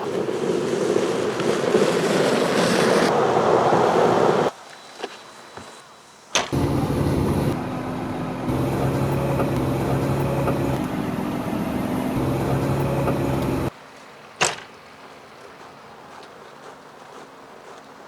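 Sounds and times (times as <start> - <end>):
supercharged pickup engine running: 6.6 - 13.7.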